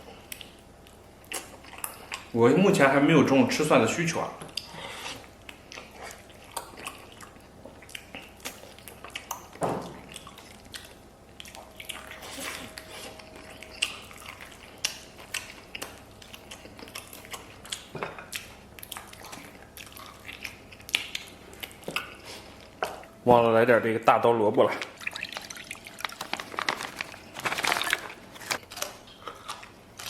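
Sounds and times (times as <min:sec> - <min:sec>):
person chewing and smacking: 0:00.0 - 0:02.4, 0:04.4 - 0:23.1, 0:28.5 - 0:30.0.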